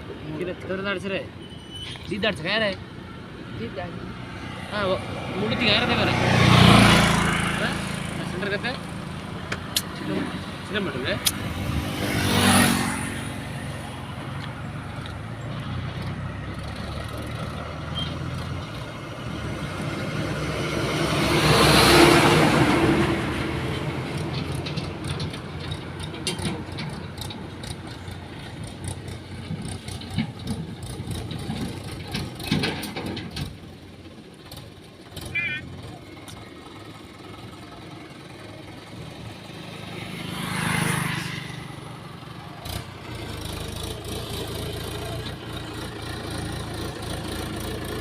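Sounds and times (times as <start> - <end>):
diesel engine running under load: 2.8 - 12.0, 13.1 - 40.2, 41.5 - 48.0
knocks and rattles: 23.0 - 35.3.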